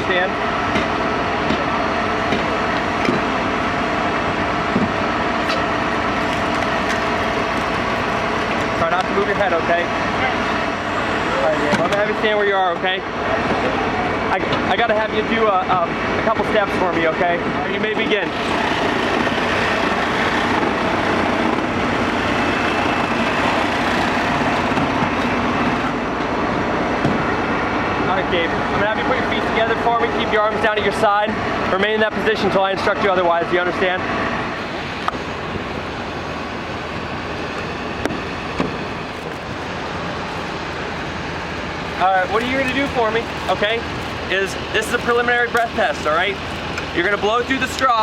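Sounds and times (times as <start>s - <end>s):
vehicle engines idling: 0.0s - 48.0s.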